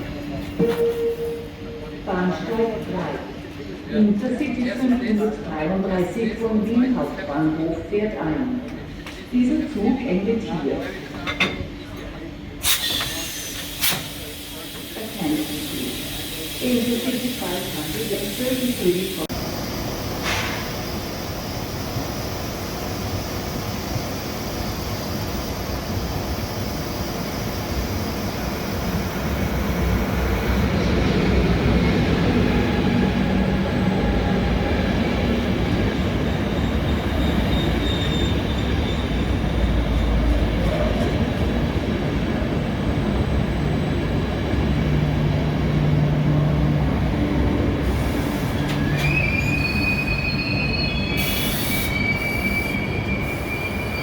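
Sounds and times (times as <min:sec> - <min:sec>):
train wheels on rail: 0:10.8 - 0:54.0
high wheel squeal braking: 0:36.4 - 0:40.1, 0:48.0 - 0:54.0.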